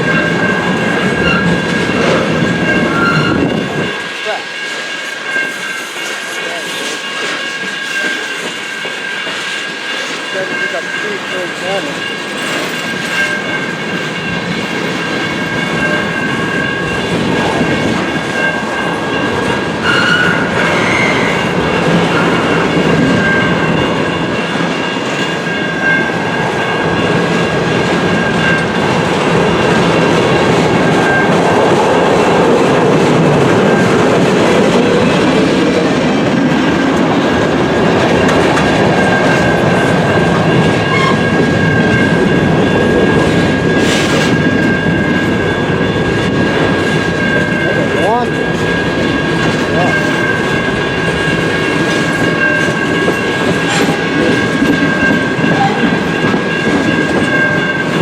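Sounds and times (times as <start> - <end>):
train cars rumbling past: 0.0 - 58.0
wheels clicking over rail joints: 0.0 - 58.0
high ringing tone: 15.0 - 28.9, 37.8 - 58.0.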